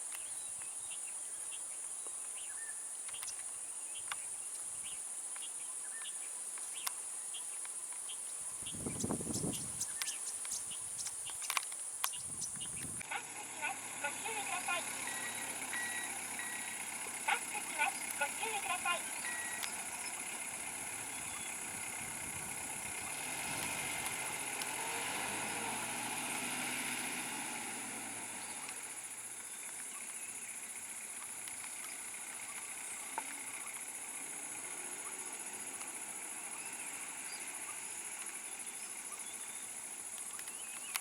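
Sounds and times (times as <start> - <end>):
outdoor background noise: 0.0 - 41.0
vehicle engine passing: 13.0 - 39.2.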